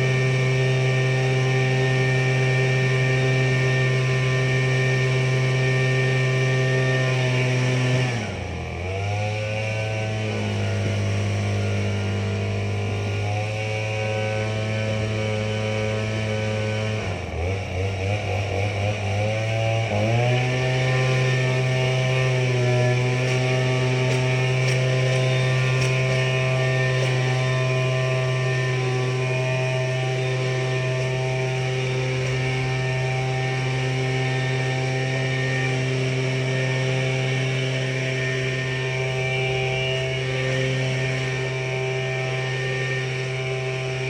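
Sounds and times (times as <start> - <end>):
tractor engine running: 9.6 - 44.0.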